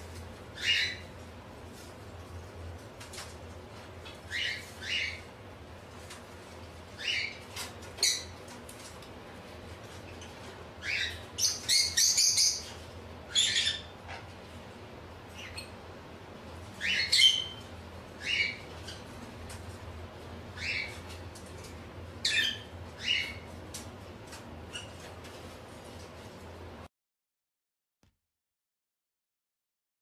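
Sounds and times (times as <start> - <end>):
bird chirping and squawking: 0.6 - 1.1, 4.2 - 5.3, 7.0 - 8.4, 10.2 - 14.1, 15.4 - 15.8, 16.8 - 19.2, 20.6 - 21.1, 22.2 - 23.5, 24.7 - 25.1.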